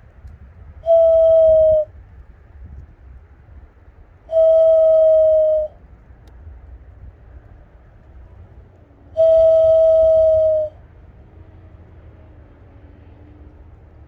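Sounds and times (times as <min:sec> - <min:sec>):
person whistling bird call: 0:00.9 - 0:01.9, 0:04.3 - 0:05.7, 0:09.2 - 0:10.8.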